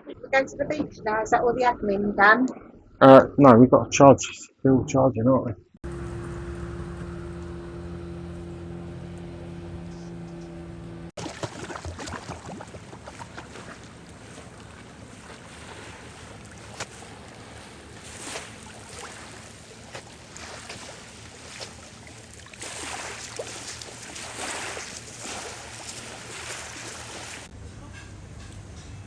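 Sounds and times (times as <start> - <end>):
faint low drone: 5.8 - 11.1
splashing water: 11.1 - 27.5.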